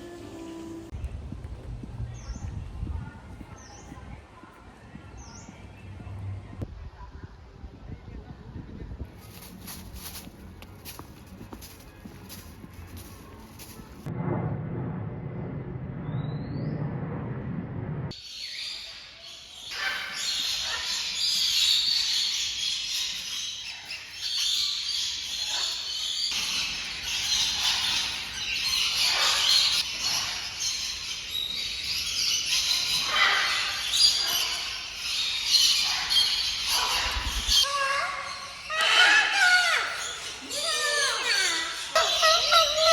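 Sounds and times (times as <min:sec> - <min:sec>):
many birds chirping: 0:02.0 - 0:06.6, 0:18.2 - 0:42.9.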